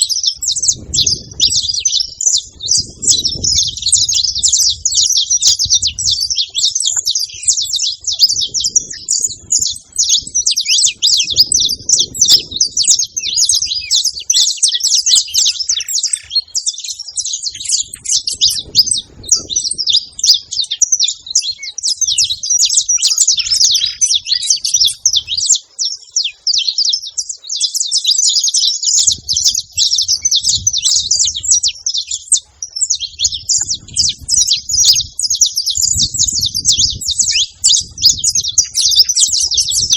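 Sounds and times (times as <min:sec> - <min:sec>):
finch singing high chirps: 0:00.0 - 0:39.9.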